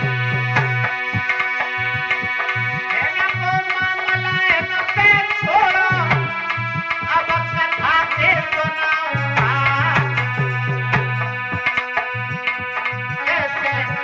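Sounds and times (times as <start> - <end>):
hand drum beat: 0.0 - 13.4.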